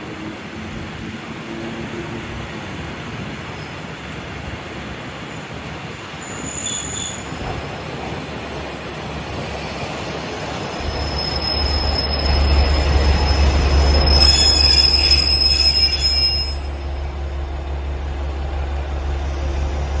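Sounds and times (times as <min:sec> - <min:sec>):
train rumbling past: 0:00.0 - 0:20.0
high wheel squeal: 0:06.2 - 0:17.0.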